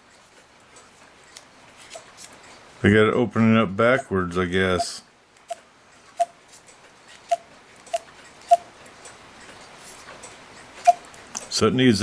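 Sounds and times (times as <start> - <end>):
clock ticking: 7.3 - 8.7.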